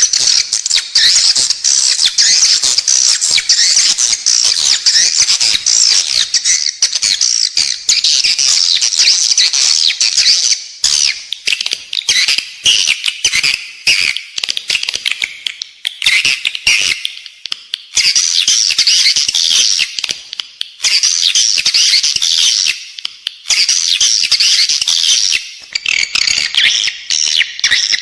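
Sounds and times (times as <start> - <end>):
swiftlets twittering and chirping: 0.0 - 15.1.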